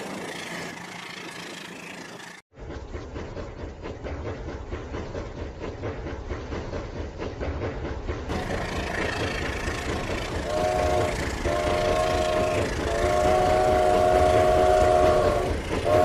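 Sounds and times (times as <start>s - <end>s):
train horn chord: 10.4s - 16.0s.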